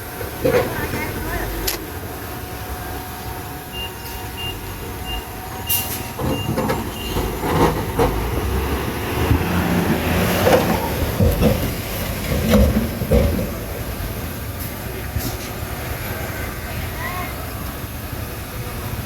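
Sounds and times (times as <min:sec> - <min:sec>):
bulldozer diesel engine: 0:00.0 - 0:19.0
short high beeps: 0:03.7 - 0:07.3
metallic clanks and knocks: 0:10.4 - 0:13.7.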